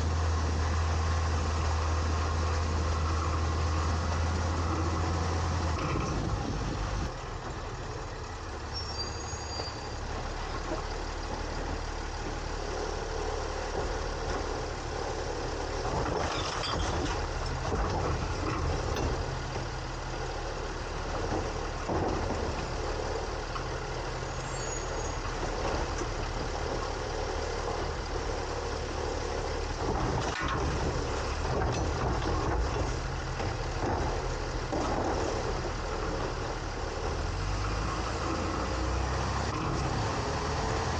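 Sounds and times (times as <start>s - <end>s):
garbage truck running: 0.0s - 40.9s
short knocks and clatters: 29.4s - 37.2s.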